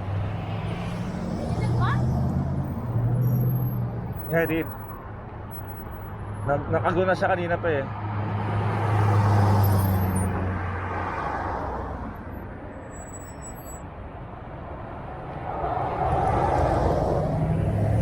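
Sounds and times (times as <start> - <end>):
vehicle engine hum: 0.0 - 6.8, 11.6 - 18.0.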